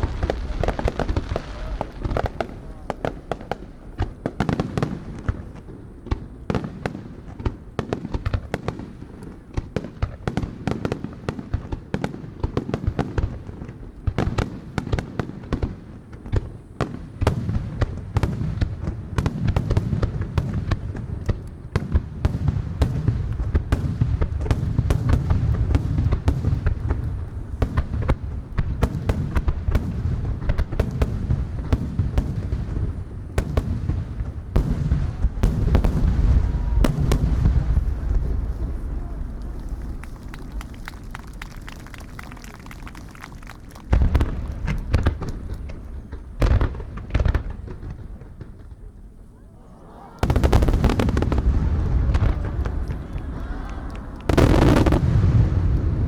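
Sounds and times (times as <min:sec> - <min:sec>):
fireworks bangs: 0:00.0 - 0:56.0
low fireworks rumble: 0:00.0 - 0:56.0.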